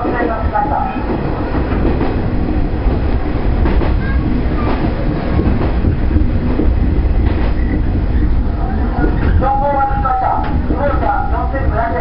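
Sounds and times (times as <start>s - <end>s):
wheels rumbling on rail: 0.0s - 12.0s
rail-joint clicks: 10.4s - 10.8s.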